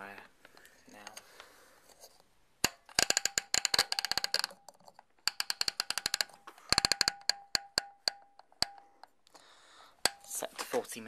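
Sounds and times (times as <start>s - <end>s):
timer dial ratcheting clicks: 2.9s - 9.1s.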